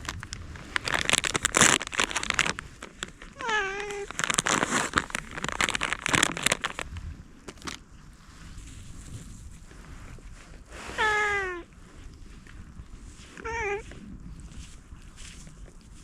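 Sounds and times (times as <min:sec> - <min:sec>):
wrapper crinkling and rustling: 0:00.0 - 0:07.8
cat meowing: 0:03.4 - 0:04.1, 0:11.0 - 0:11.7, 0:13.4 - 0:13.9.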